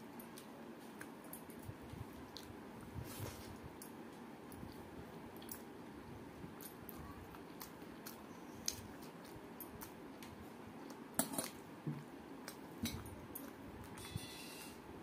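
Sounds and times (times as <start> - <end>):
wet chewing and mouth clicks: 6.5 - 14.2.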